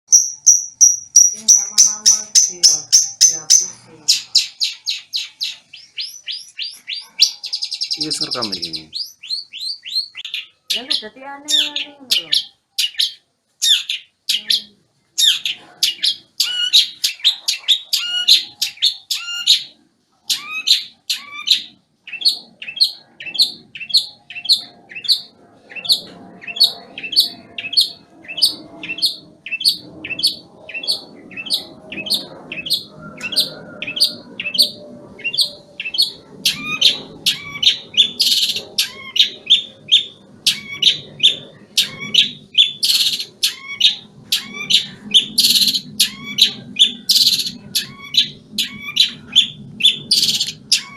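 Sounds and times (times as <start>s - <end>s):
bird chirping fast sharp notes: 0.1s - 10.9s.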